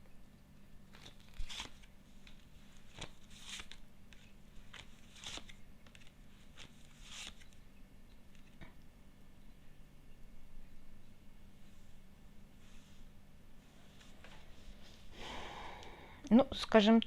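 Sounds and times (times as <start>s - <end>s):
cards swishing: 0.9s - 7.6s.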